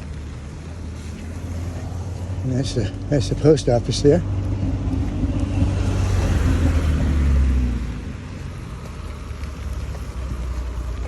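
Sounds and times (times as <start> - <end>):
engine and road noise: 0.0 - 11.0
vehicle driving past: 0.0 - 11.0.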